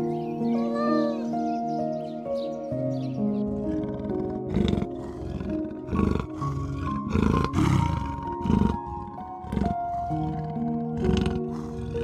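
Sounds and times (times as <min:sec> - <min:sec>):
soft background music: 0:00.0 - 0:12.0
leopard rasping calls: 0:03.2 - 0:12.0.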